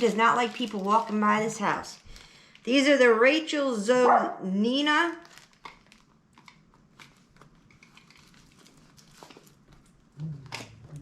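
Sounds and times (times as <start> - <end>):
packaging crinkling and clicks: 0.0 - 2.6, 5.2 - 10.8.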